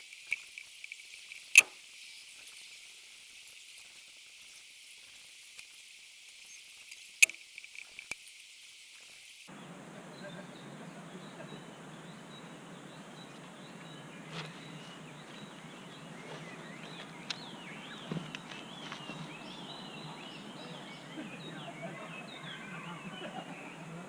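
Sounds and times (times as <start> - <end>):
outdoor background hiss: 0.0 - 24.0
small birds chirping: 0.0 - 24.0
sharp snaps: 0.1 - 1.8.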